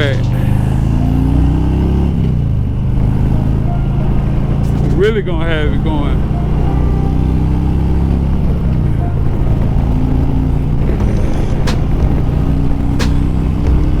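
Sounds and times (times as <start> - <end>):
motorcycle engine running: 0.0 - 14.0
short sharp clicks: 13.0 - 13.4.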